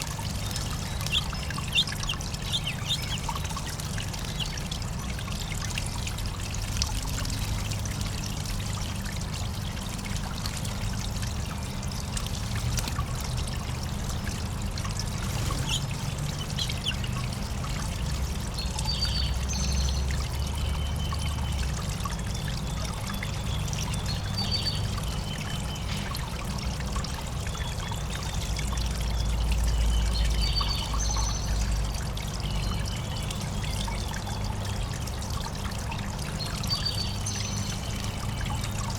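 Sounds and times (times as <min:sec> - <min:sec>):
water trickling into bird bath: 0:00.0 - 0:38.9
bird chirps: 0:00.4 - 0:04.6, 0:15.5 - 0:17.1.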